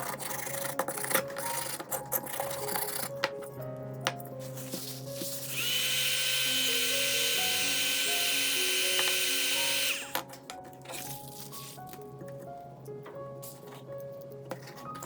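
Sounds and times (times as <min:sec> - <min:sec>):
background music with plucked notes: 0:00.0 - 0:05.6, 0:06.6 - 0:15.0
small electric tool whining: 0:05.2 - 0:10.3.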